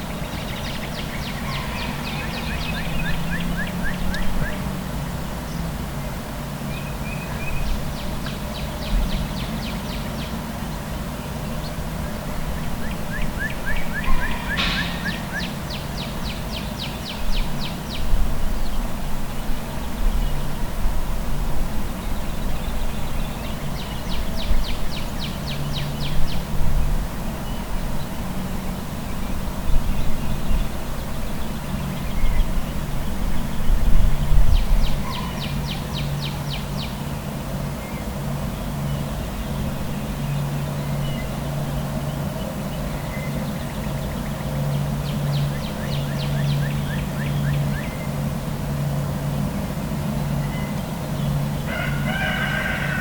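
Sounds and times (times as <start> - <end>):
low traffic rumble: 0.0 - 53.0
songbird trilling: 0.1 - 4.6, 12.8 - 17.8.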